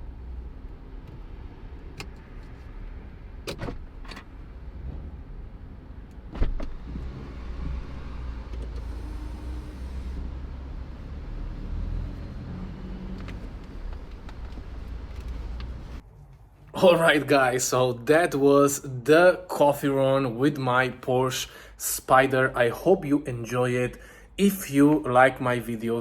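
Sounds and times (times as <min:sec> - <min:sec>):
car rumble: 0:00.0 - 0:16.1.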